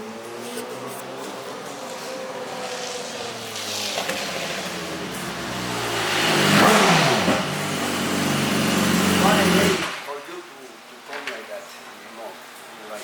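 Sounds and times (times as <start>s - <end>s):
car engine revving: 0.0s - 10.1s.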